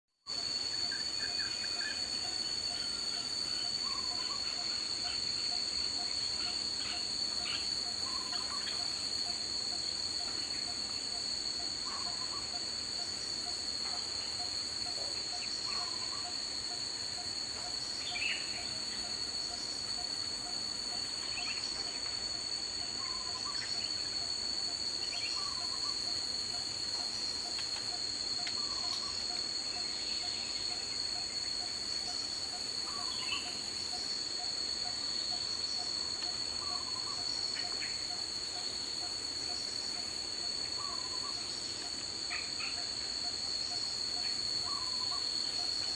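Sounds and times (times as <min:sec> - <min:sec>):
high-pitched insect drone: 0:00.2 - 0:45.9.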